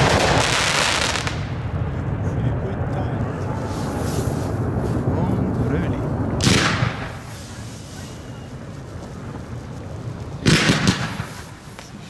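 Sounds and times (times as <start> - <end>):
fireworks launch bangs: 0.0 - 12.0
fireworks hiss: 3.3 - 12.0.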